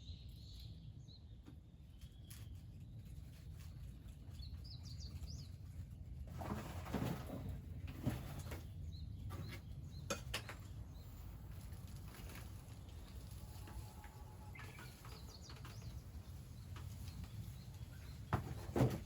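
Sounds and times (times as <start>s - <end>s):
small bird chirping: 0.0s - 5.8s, 13.0s - 18.4s.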